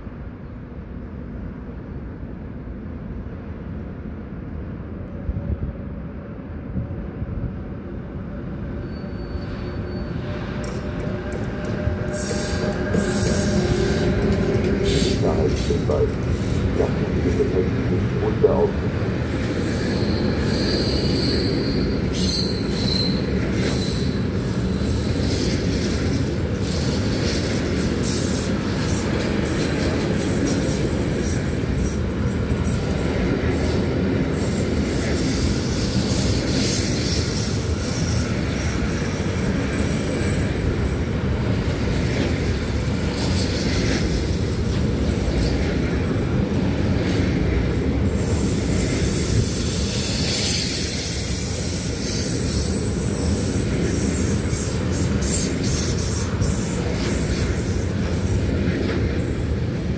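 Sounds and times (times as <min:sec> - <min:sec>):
train wheels rumbling on rails: 0:00.1 - 0:59.9
high wheel squeal: 0:08.8 - 0:11.0, 0:19.6 - 0:25.5, 0:48.2 - 0:57.8.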